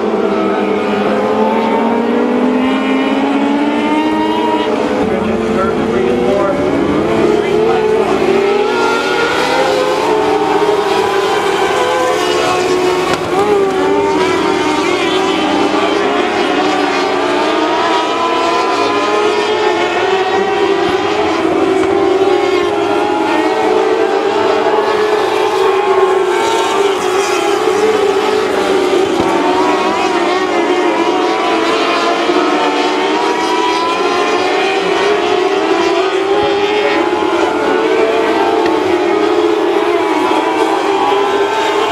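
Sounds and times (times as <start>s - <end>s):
race car engines revving: 0.0s - 41.9s.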